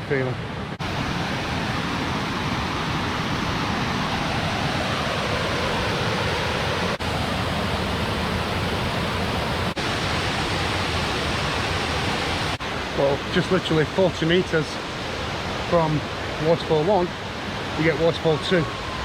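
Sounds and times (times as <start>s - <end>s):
waterfall rushing down cascade: 0.8s - 19.0s.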